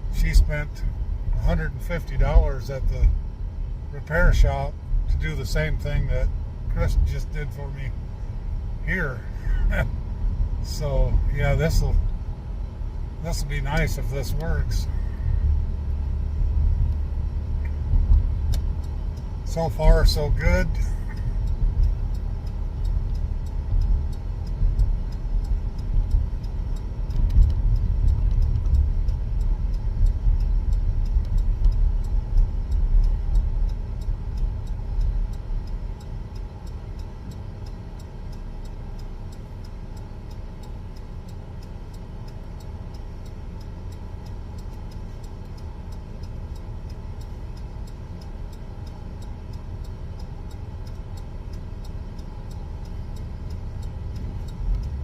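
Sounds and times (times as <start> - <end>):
faint regular ticking: 0.0 - 55.0
road and engine rumble in car: 0.0 - 55.0.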